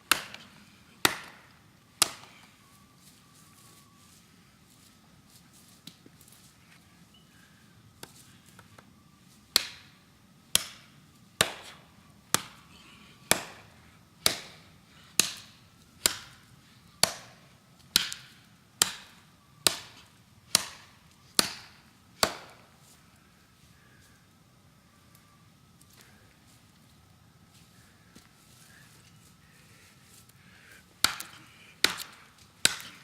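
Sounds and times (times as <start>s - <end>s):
blade chopping into tree trunk: 31.0s - 33.0s.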